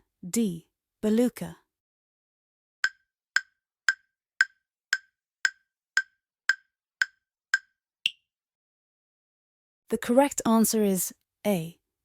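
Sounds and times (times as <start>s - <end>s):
countdown timer ticks: 2.8s - 8.2s.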